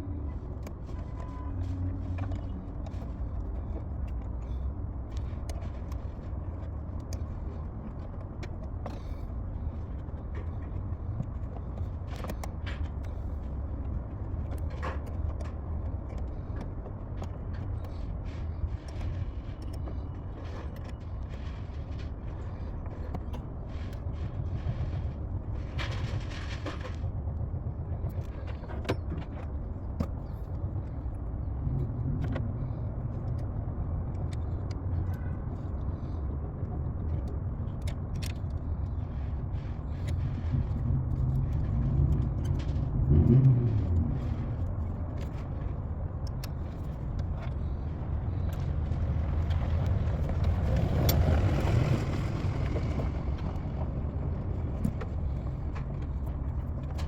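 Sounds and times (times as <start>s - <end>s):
car engine hum: 37.2s - 57.0s.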